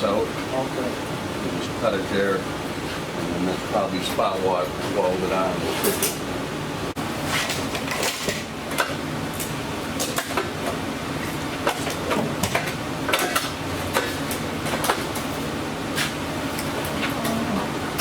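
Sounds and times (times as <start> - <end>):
low shop hum: 0.0 - 18.0.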